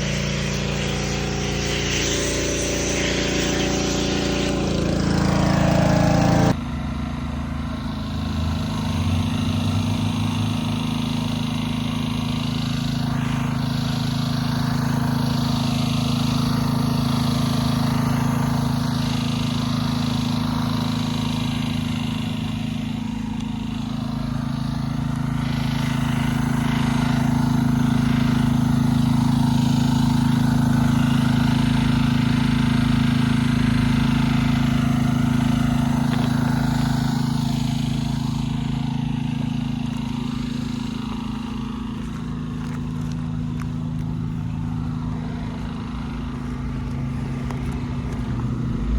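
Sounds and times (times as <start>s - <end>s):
hiss: 0.0s - 5.8s
small engine running steadily: 0.0s - 48.9s.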